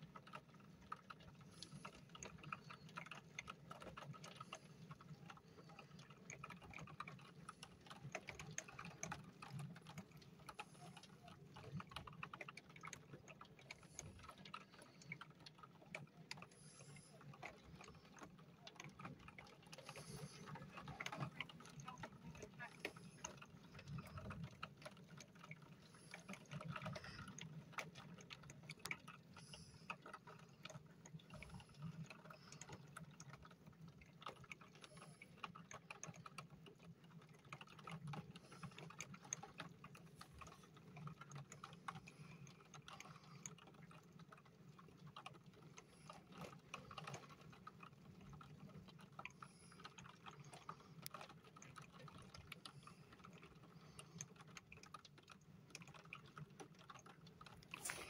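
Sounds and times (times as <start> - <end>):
light raindrops ticking: 0.0 - 58.0
low steady hum: 56.9 - 58.0.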